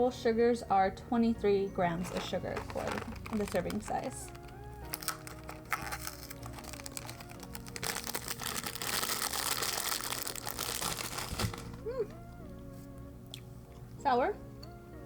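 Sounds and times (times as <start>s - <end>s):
plastic bag crinkling: 2.0s - 12.0s.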